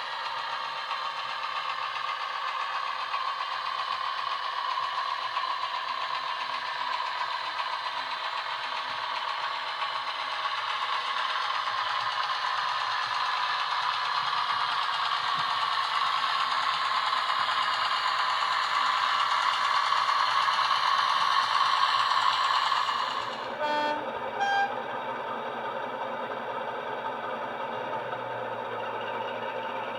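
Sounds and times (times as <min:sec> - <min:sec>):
model locomotive diesel engine: 0:00.0 - 0:29.9
two-tone horn: 0:23.6 - 0:24.9.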